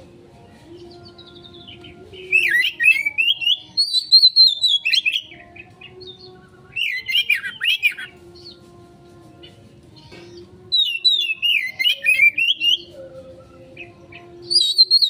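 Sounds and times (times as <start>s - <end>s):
songbird singing jumbled phrases: 0.0s - 15.0s.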